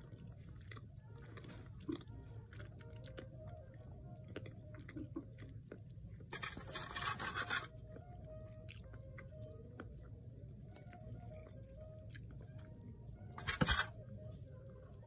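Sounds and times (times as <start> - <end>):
person chewing with dentures: 0.0 - 8.0.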